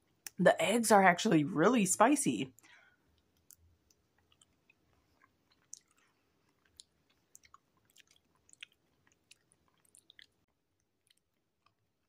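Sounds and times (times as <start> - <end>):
mouth chewing wet clicks: 3.2 - 11.8.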